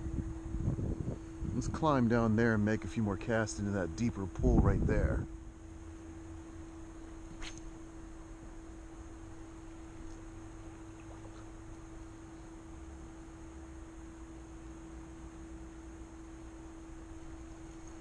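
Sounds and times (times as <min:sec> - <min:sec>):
high whine: 0:00.0 - 0:18.0
steady hum: 0:00.0 - 0:18.0
sharp click: 0:07.4 - 0:07.7.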